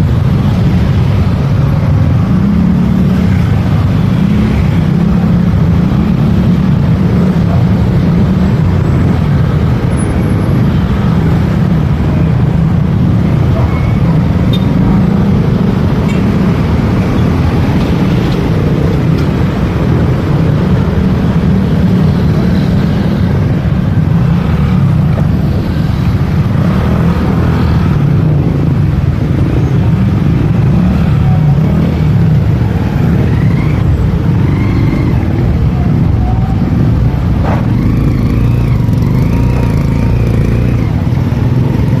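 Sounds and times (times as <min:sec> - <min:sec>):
road and wind noise: 0:00.0 - 0:42.0
motorcycle engine: 0:13.2 - 0:42.0.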